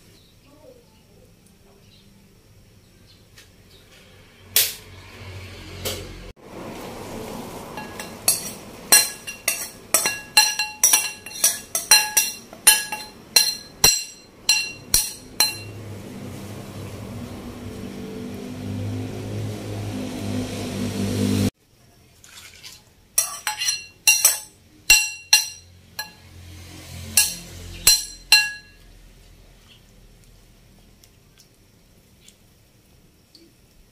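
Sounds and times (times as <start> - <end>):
metal spoon clinking on pan: 7.8 - 15.8, 23.2 - 26.3, 27.2 - 28.9.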